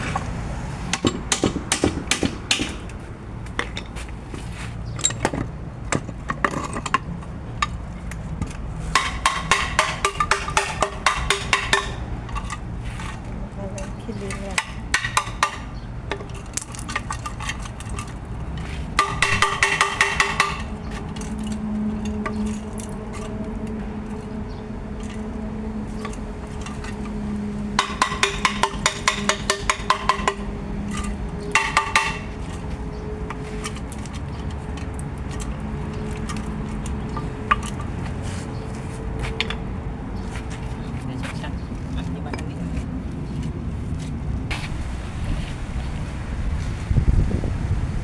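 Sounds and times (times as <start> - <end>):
rapid metallic strikes: 19.0 - 20.8.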